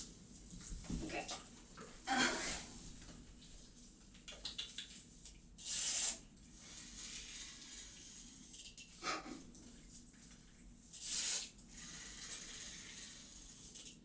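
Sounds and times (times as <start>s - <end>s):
kitten hissing: 5.6s - 6.2s, 11.0s - 11.5s.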